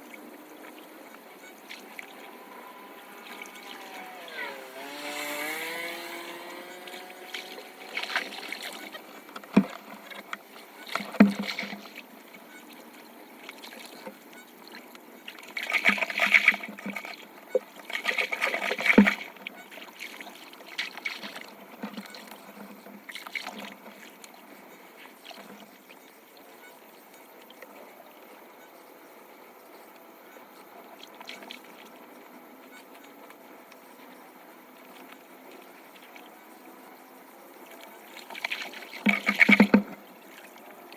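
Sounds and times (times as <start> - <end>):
water trickling into drain: 0.0 - 25.6.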